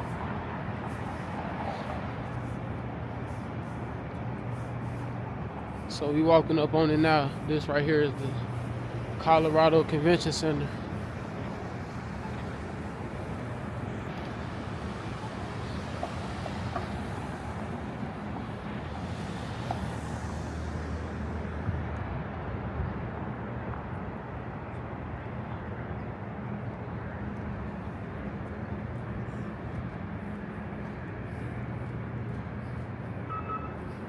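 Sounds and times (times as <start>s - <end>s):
traffic noise with low hum: 0.0s - 34.0s
vehicle passing: 4.5s - 22.7s.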